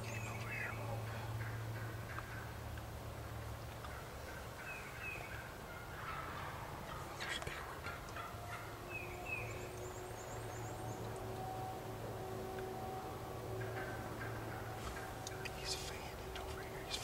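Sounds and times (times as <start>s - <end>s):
turkey gobbling: 0.8s - 2.6s, 3.8s - 7.2s, 7.8s - 9.1s.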